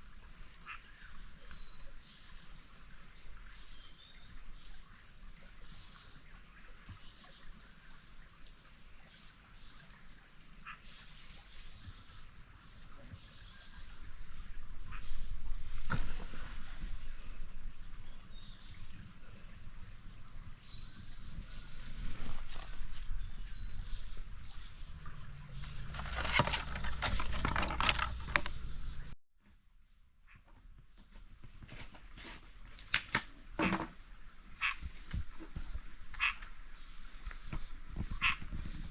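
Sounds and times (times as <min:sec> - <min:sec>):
high-pitched insect chorus: 0:00.0 - 0:29.2, 0:30.8 - 0:38.9
knocks and rustles: 0:14.4 - 0:18.0, 0:25.6 - 0:29.1.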